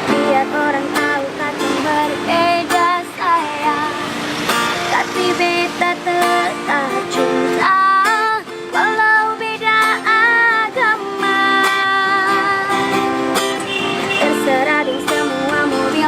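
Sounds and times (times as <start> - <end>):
strummed string accompaniment: 0.0 - 16.0
woman singing: 0.0 - 16.0.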